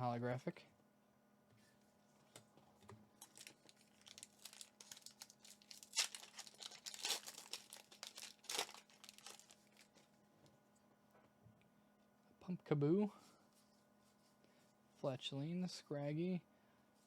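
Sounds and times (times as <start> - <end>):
foil wrapper crinkling and tearing: 3.2 - 10.1.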